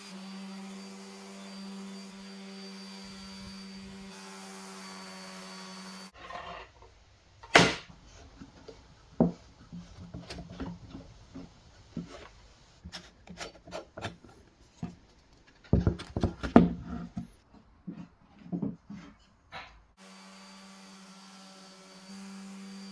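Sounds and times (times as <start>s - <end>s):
wooden knocks and scraping: 6.2s - 19.9s.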